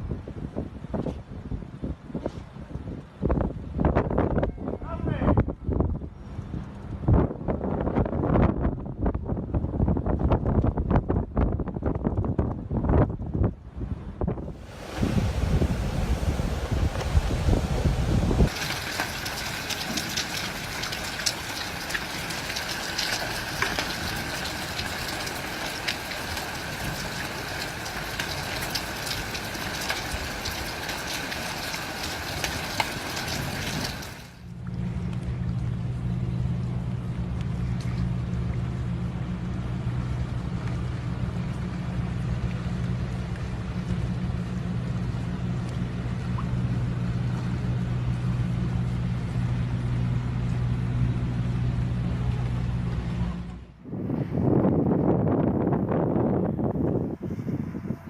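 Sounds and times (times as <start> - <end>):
steady low rumble: 0.0 - 58.0
heavy rain: 14.5 - 34.4.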